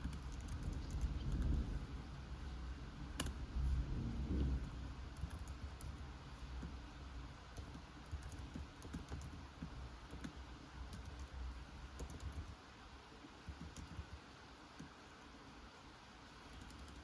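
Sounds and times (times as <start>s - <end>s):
computer keyboard typing: 0.0s - 2.2s, 3.2s - 3.8s, 4.4s - 12.6s, 13.4s - 14.2s, 16.4s - 17.0s
low rumble: 0.6s - 7.2s
rain hissing: 0.7s - 5.2s.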